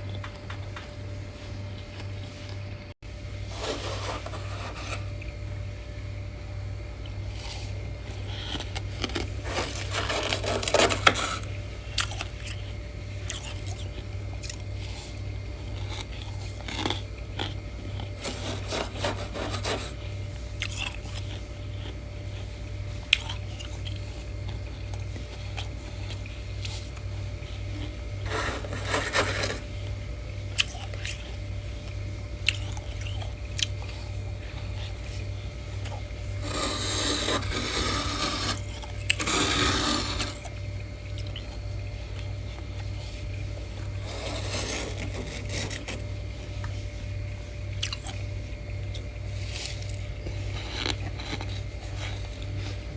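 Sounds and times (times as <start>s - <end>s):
steady low hum: 0.0s - 52.9s
frost being scraped: 3.4s - 5.2s, 7.4s - 11.6s, 18.2s - 20.1s, 28.2s - 29.7s, 36.4s - 40.5s, 43.9s - 46.1s.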